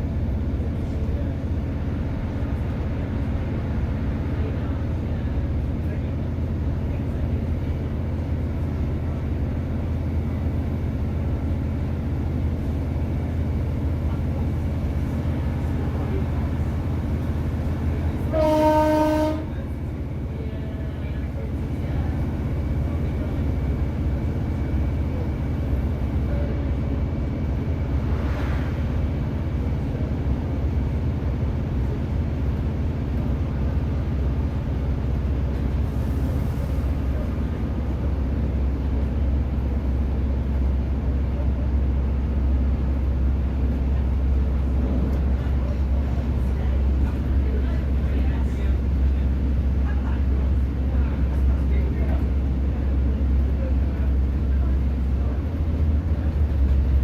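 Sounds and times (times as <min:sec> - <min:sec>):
diesel train rumble: 0:00.0 - 0:57.0
train horn: 0:18.3 - 0:19.6.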